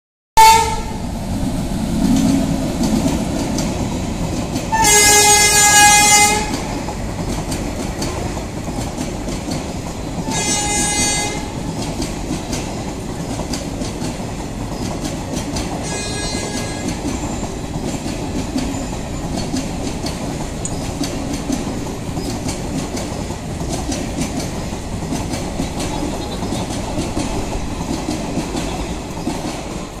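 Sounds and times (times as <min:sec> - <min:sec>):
train horn blasts: 0:00.4 - 0:01.0, 0:04.7 - 0:06.7, 0:10.2 - 0:11.6, 0:15.8 - 0:17.0
train wheels clacking on rails: 0:01.9 - 0:30.0.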